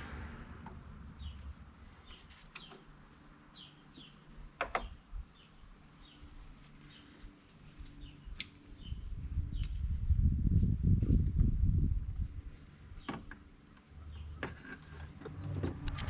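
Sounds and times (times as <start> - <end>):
faint birds chirping: 0.8 - 10.0, 12.2 - 15.8.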